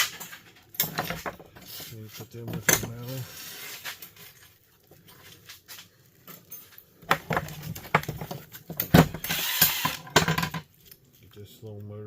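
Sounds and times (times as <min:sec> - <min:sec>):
metal and plastic parts clattering: 0:00.0 - 0:05.4, 0:06.2 - 0:11.3.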